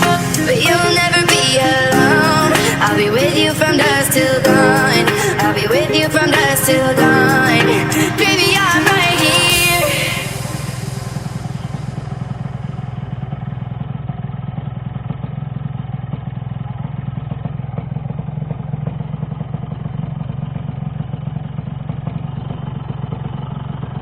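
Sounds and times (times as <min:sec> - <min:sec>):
two-stroke motorcycle engine running: 0:11.8 - 0:24.0.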